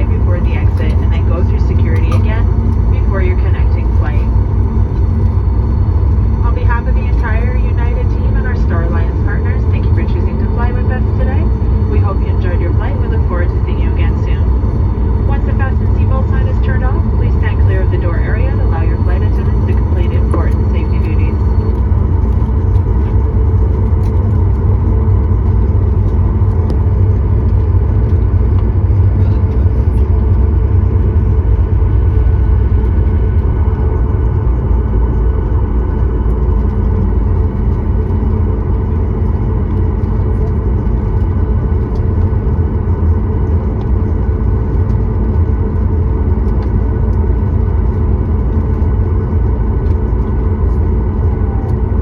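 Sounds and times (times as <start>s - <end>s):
faint steady tones: 0.0s - 52.0s
jet engines and airflow rumbling: 0.0s - 52.0s.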